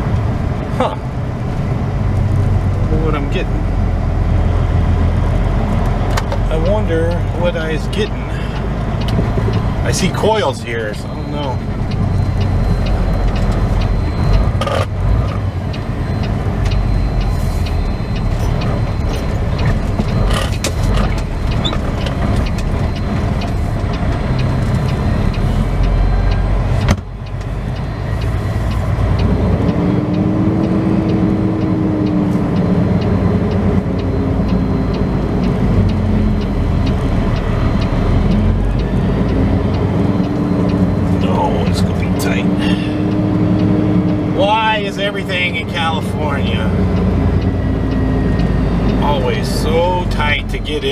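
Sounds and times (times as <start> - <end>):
diesel truck engine running: 0.0 - 50.9
sharp clicks and knocks: 5.6 - 7.3, 8.0 - 42.1.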